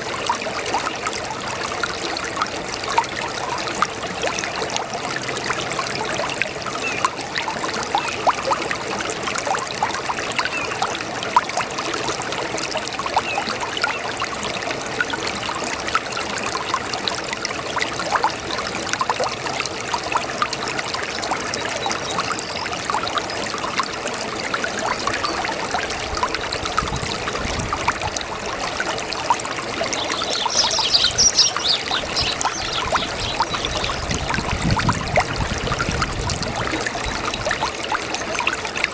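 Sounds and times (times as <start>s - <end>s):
water trickling over stones: 0.0s - 38.9s.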